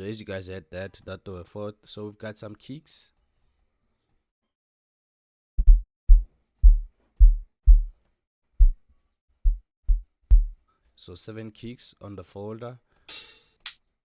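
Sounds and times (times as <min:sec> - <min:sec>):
deep kick drum thumps: 0:05.6 - 0:07.9, 0:08.6 - 0:08.8, 0:09.4 - 0:10.6.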